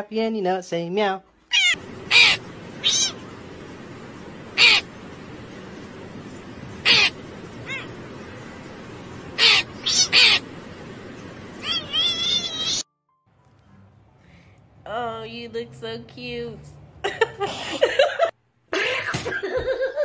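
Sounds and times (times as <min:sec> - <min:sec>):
steady background noise: 0:01.5 - 0:12.8
crow cawing: 0:01.6 - 0:03.2, 0:04.6 - 0:04.9, 0:06.8 - 0:08.0, 0:09.4 - 0:10.4.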